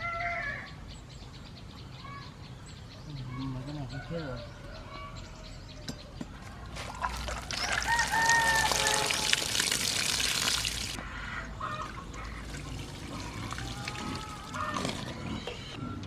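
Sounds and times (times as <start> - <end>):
rooster crowing: 3.9 - 5.7, 7.5 - 9.5
water pouring: 6.8 - 11.0, 11.7 - 15.4
water trickling: 6.8 - 11.0, 11.6 - 15.4.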